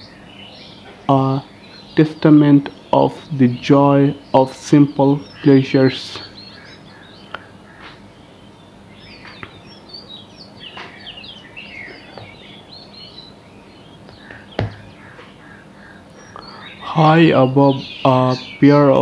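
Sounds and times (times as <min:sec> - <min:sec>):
small birds chirping: 0:00.0 - 0:19.0
sharp knock: 0:14.3 - 0:14.9.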